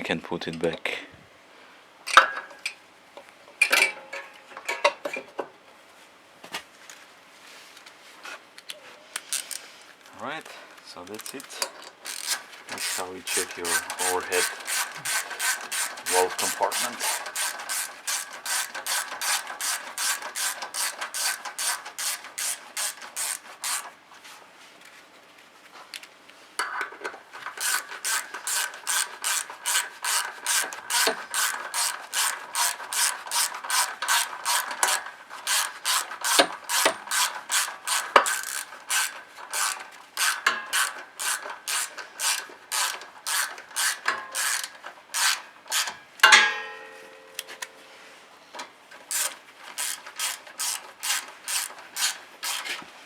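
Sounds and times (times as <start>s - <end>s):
ratchet wrench clicking: 11.2s - 23.9s, 27.4s - 45.9s, 49.1s - 52.8s.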